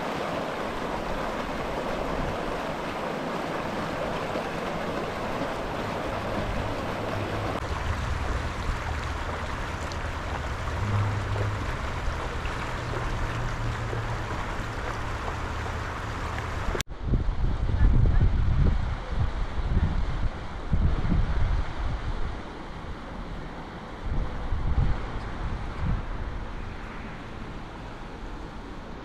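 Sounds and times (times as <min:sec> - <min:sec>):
running water rushing: 0:00.0 - 0:16.8
low rumble: 0:06.0 - 0:17.8.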